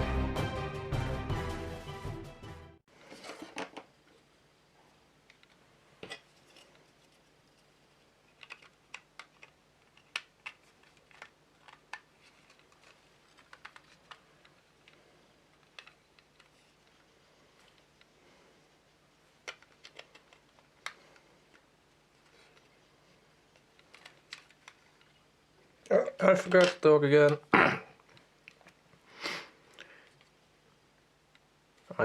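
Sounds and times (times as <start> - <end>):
plastic parts clicking and tapping: 8.2 - 18.1, 19.4 - 22.7, 23.5 - 25.2, 25.8 - 27.5.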